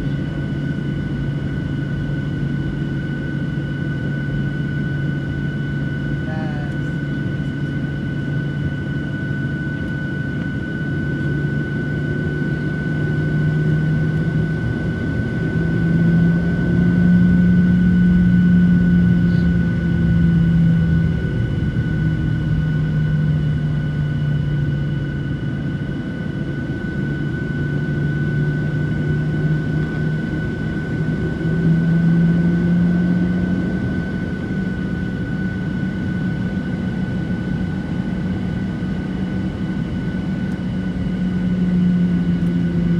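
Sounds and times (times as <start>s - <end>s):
jet engines whining: 0.0s - 42.9s.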